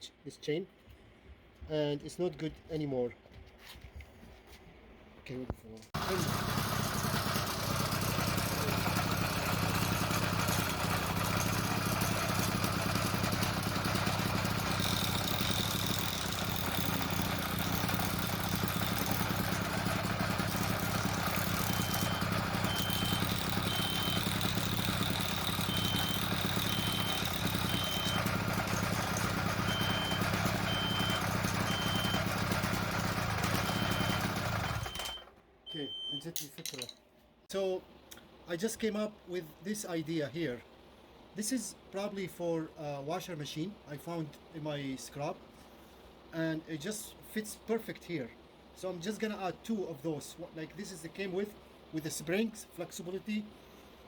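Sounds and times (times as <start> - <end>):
drive chain turning: 6.0 - 35.2
motorized bicycle engine running: 6.0 - 35.3
faint short high beep: 35.0 - 36.4.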